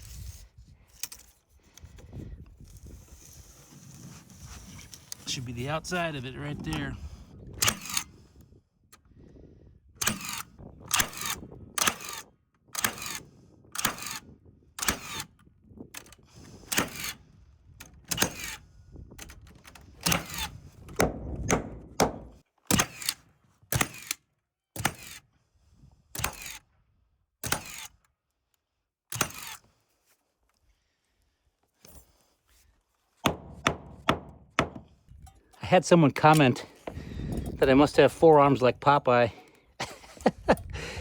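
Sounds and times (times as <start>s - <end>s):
hammering on wooden subfloor: 21.0s - 22.9s, 33.2s - 34.9s.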